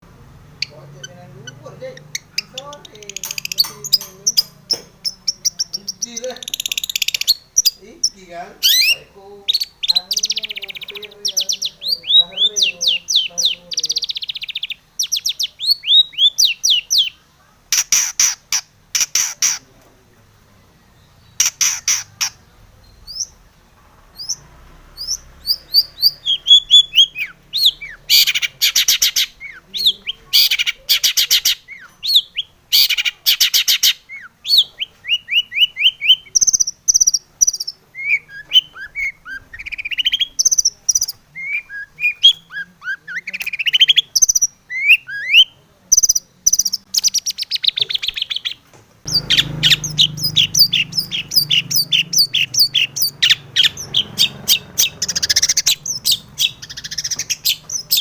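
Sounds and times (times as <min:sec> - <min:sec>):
harsh rasping bird chatters: 0:00.6 - 0:19.7, 0:21.3 - 0:22.5, 0:25.0 - 0:58.0
bird singing whistled notes: 0:01.4 - 0:17.2, 0:20.7 - 0:23.4, 0:24.2 - 0:58.0.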